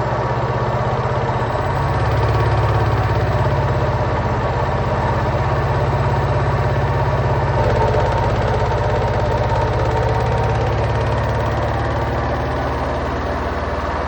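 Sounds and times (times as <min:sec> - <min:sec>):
washing machine spinning: 0:01.6 - 0:12.8.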